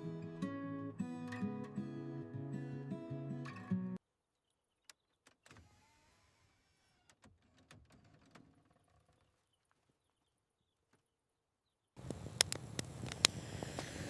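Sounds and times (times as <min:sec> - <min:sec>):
faint clicks: 0:12.0 - 0:13.9.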